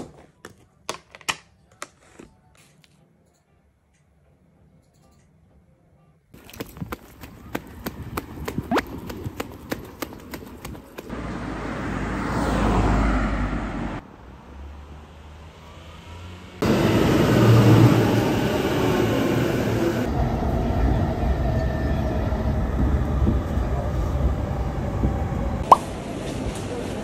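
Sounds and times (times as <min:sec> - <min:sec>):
footsteps on wet pavement: 0:06.4 - 0:11.1
road traffic passing: 0:06.4 - 0:27.0
train running inside carriage: 0:16.6 - 0:27.0.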